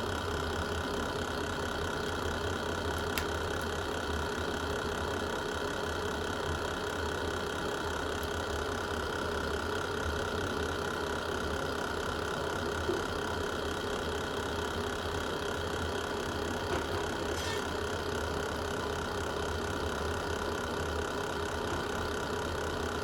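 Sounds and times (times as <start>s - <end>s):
wood fire crackling: 2.9s - 3.9s.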